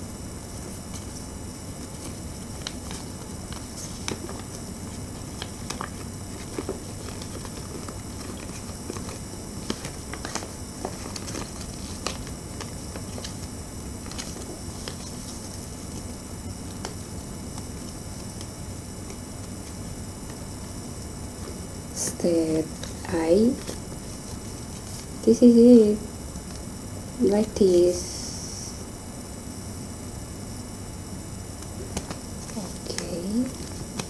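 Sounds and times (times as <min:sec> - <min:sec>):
steady background hiss: 0:00.0 - 0:34.0
paper being folded and creased: 0:01.8 - 0:18.5, 0:22.7 - 0:25.2.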